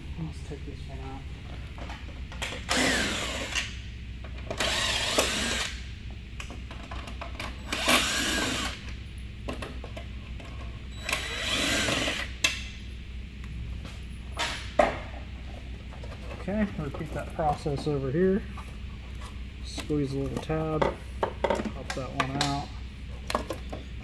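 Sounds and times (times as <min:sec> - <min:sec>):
cordless drill spinning: 0:02.7 - 0:03.8, 0:04.6 - 0:05.8, 0:07.6 - 0:08.9, 0:11.0 - 0:12.4.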